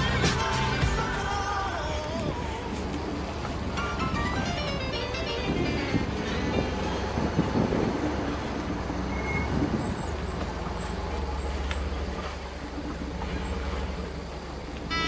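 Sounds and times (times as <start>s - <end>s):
vehicle engine low rumble: 0.0s - 15.0s.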